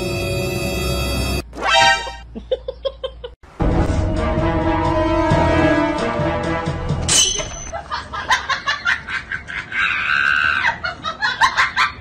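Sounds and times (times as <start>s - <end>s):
background music: 3.6s - 7.7s.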